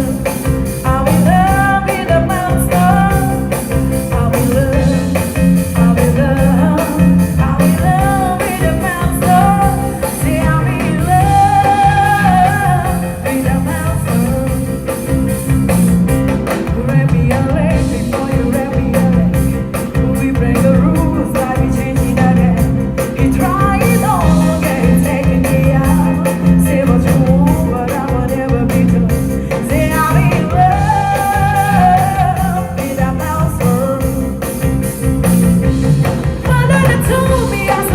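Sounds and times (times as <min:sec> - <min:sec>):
person singing over backing music: 0:05.8 - 0:14.6, 0:16.6 - 0:34.4.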